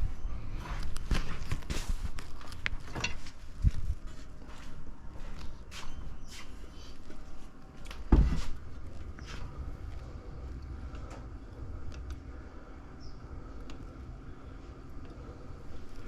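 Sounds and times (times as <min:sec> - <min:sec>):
heavy thump: 0:08.1 - 0:08.6.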